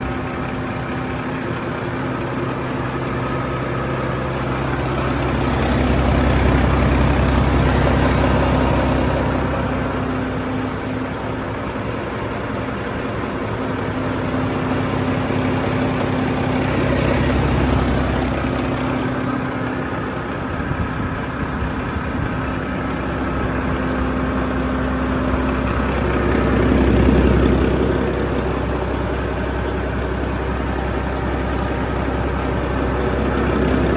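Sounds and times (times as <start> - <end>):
diesel engine idling and revving: 0.0 - 33.9.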